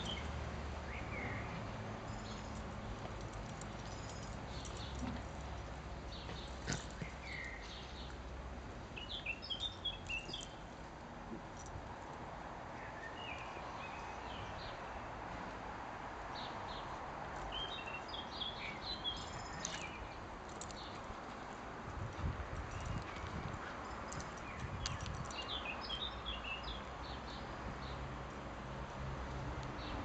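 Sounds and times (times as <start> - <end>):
small birds chirping: 0.0 - 5.0, 6.0 - 8.2, 8.9 - 10.7, 12.7 - 14.9, 16.3 - 21.1, 22.7 - 28.0
steady outdoor hiss: 0.0 - 30.0.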